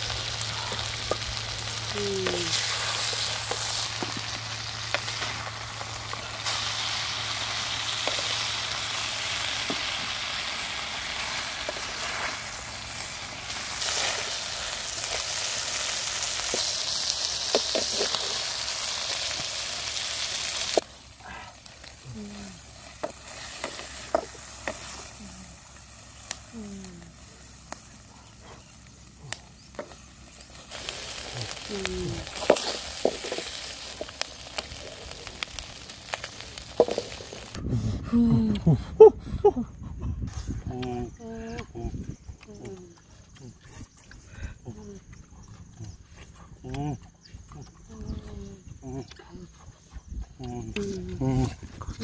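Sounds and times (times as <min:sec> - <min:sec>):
food sizzling in a wok: 0:00.0 - 0:37.6.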